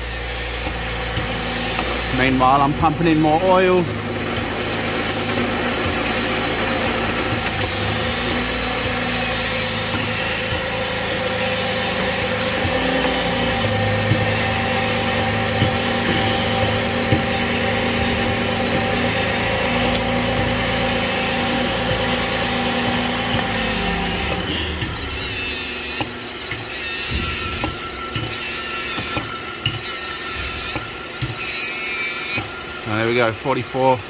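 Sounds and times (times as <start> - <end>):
car engine idling: 0.5 - 25.4.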